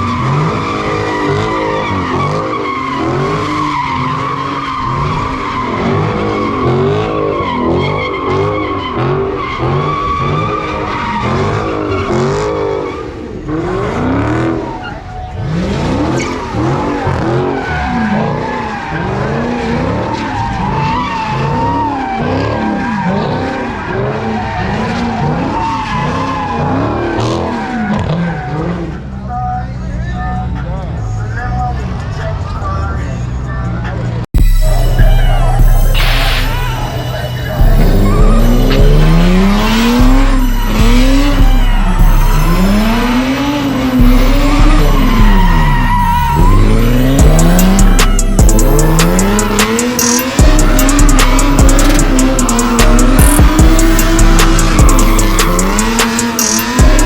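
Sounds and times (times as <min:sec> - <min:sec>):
car engine revving: 0:00.0 - 0:57.0
car tyres squealing: 0:00.0 - 0:57.0.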